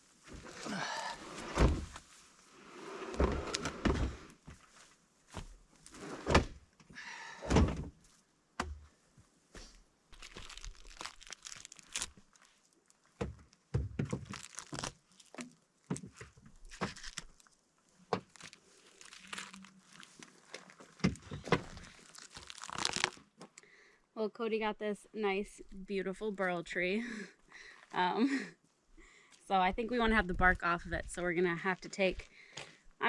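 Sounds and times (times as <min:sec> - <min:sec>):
rustling and scraping: 0:00.0 - 0:06.3, 0:14.2 - 0:17.6, 0:18.2 - 0:23.0.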